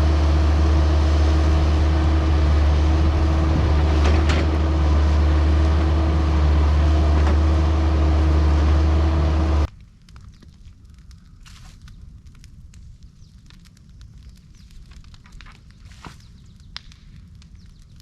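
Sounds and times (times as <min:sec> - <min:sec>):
large engine running: 0:00.0 - 0:09.7.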